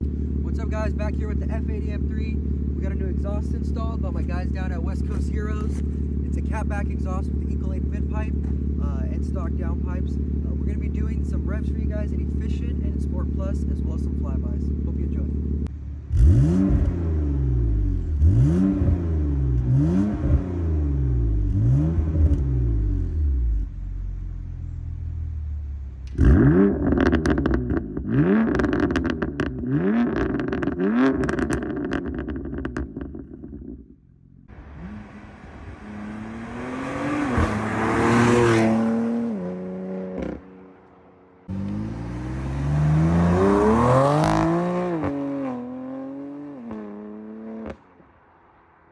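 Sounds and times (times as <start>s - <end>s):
car engine revving: 0.0s - 48.1s
exhaust crackles and pops: 26.0s - 35.7s
car driving past: 34.5s - 48.8s.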